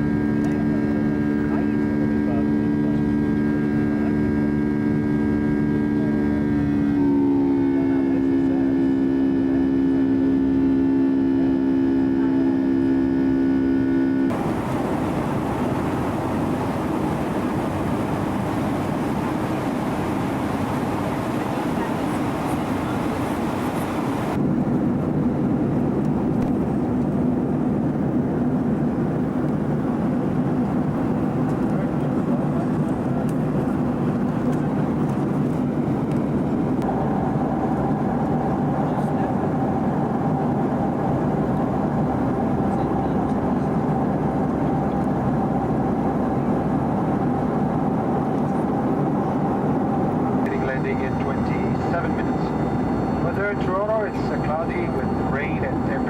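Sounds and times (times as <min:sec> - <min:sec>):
jet engine whine: 0:00.0 - 0:56.0
rushing airflow: 0:14.3 - 0:24.7.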